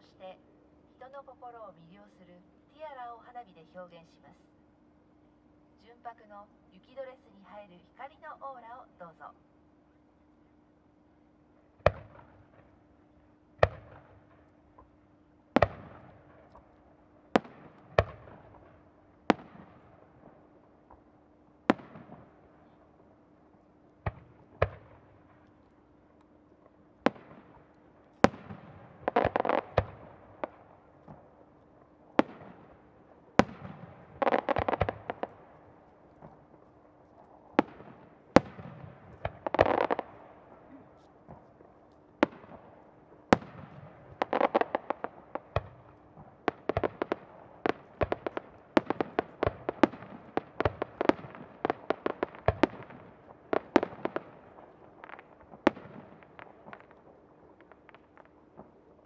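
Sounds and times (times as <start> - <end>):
firework crackling: 27.0 - 59.0.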